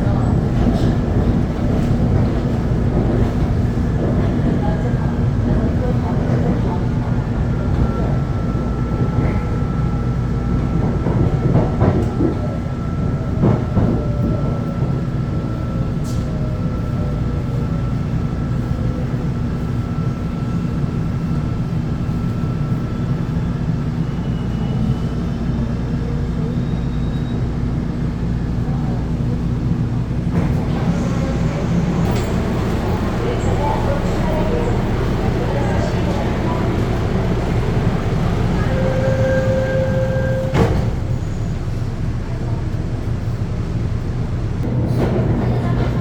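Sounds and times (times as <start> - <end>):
train rumbling on rails: 0.0 - 46.0
train motor whine: 30.4 - 41.4.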